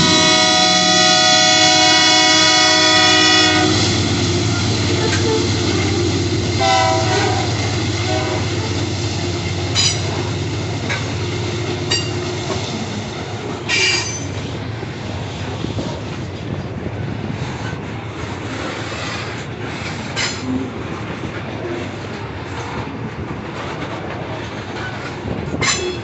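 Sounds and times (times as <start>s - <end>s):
train horn: 0.0s - 12.9s
locomotive rumble: 0.0s - 26.0s
wheels on rails: 0.0s - 26.0s.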